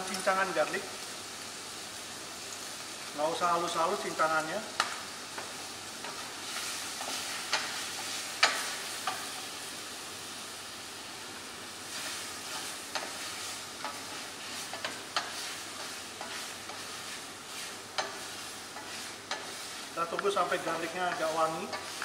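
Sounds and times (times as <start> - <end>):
chicken and garlic sizzling in oil: 0.0 - 22.0
spatula knocking and scraping pan: 12.5 - 20.4.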